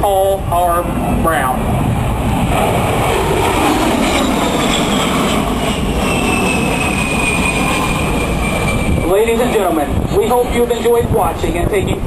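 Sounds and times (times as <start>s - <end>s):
jet aircraft flying past: 0.0s - 12.0s.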